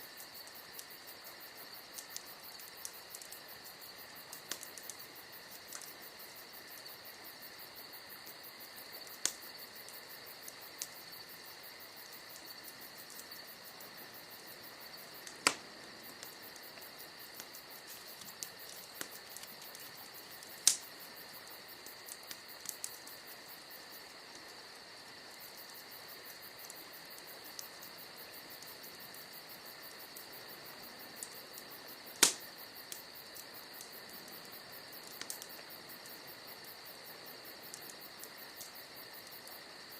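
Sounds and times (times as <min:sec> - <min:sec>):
crickets chirring: 0:00.0 - 0:39.9
fire popping: 0:00.0 - 0:39.9
wood fire crackling: 0:00.0 - 0:39.9.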